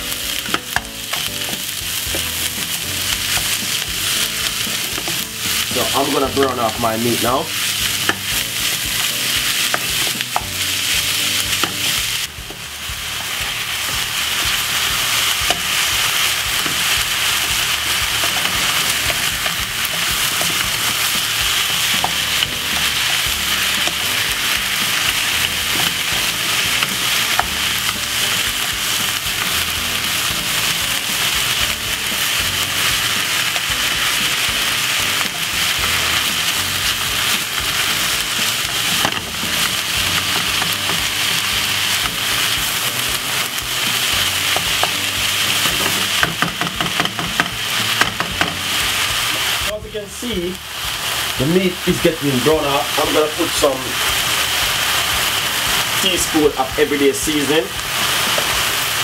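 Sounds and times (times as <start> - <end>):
meat and onions sizzling in pan: 0.0 - 59.0
spatula scraping and tapping pan: 0.4 - 6.7, 7.6 - 12.6, 13.2 - 48.9.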